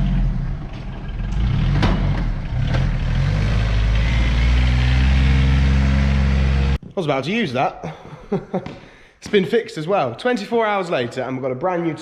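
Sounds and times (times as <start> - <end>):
diesel tractor engine running: 0.0 - 6.8.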